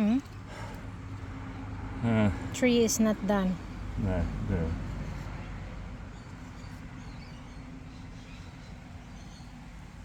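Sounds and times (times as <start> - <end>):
low outdoor hum and rumble: 0.0 - 10.0
small birds chirping: 4.2 - 10.0.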